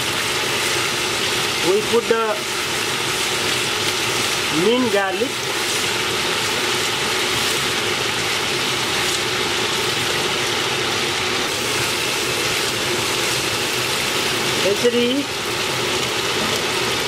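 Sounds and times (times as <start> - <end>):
vegetables sizzling in hot oil: 0.0 - 17.0
spatula stirring in a pan: 5.3 - 9.5.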